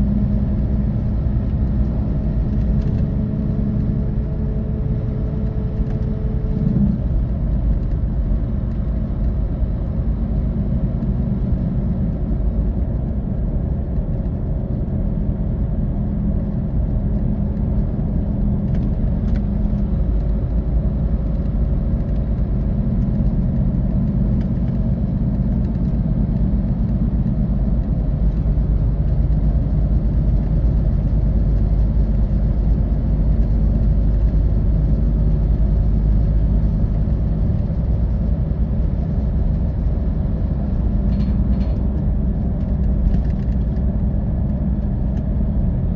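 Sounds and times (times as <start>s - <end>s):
bus diesel engine pulling: 0.0s - 45.9s
tyre and road noise: 0.0s - 45.9s.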